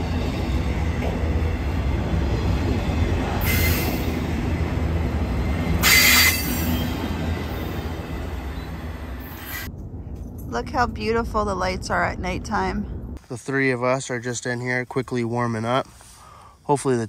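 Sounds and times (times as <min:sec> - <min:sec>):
train rumbling past: 0:00.0 - 0:13.2.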